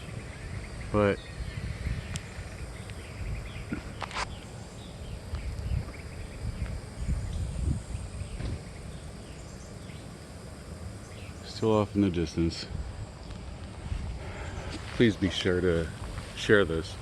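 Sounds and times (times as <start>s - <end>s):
distant low rumble: 0.0s - 17.0s
small birds chirping: 0.0s - 17.0s.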